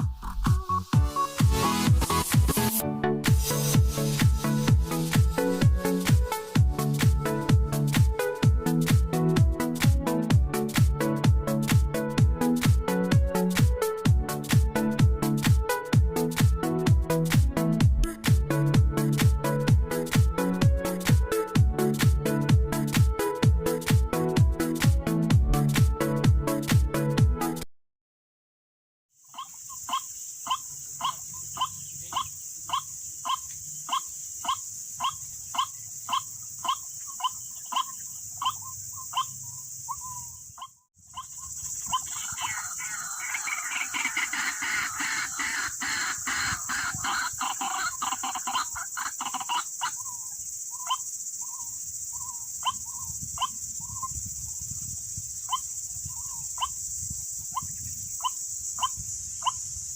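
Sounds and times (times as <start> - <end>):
high insect drone: 3.3 - 8.9, 29.2 - 59.9
waterhen calls: 29.2 - 54.2, 55.4 - 56.8, 57.5 - 59.6.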